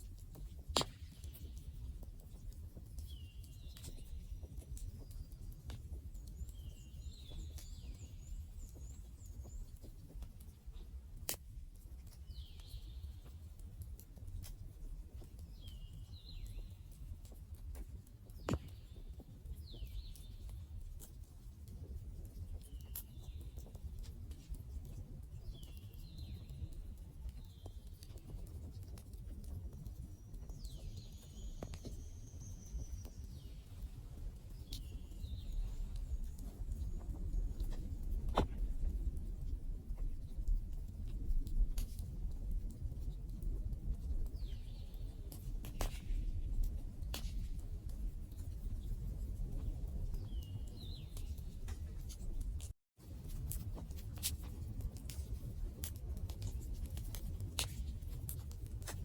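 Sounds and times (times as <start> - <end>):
fire popping: 0.0 - 13.0.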